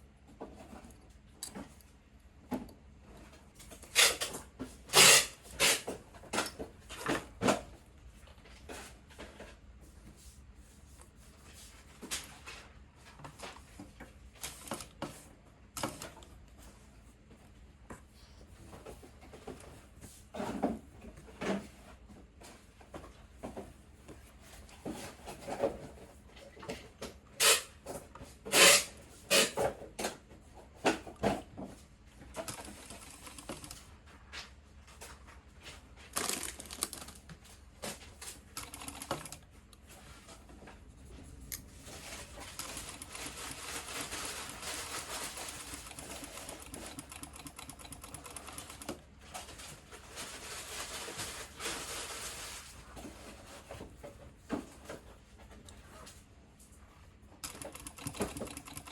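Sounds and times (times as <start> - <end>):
sewing machine stitching: 4.9 - 5.9, 28.5 - 29.6, 57.4 - 58.9.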